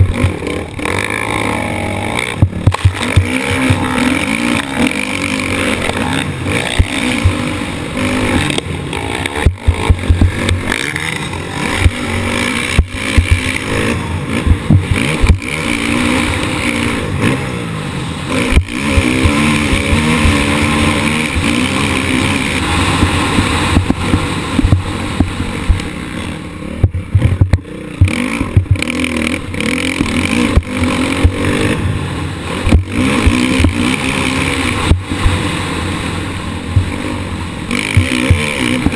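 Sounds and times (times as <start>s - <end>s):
motorbike engine revving: 0.0s - 38.9s
bike knocks and clatter: 9.2s - 10.8s, 22.9s - 25.9s, 26.8s - 28.9s.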